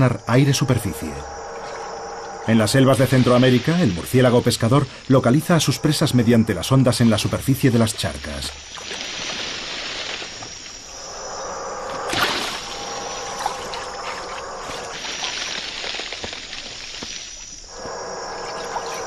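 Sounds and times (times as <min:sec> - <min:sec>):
trickling water: 0:00.0 - 0:19.0
water splash: 0:07.8 - 0:11.2, 0:11.9 - 0:17.2.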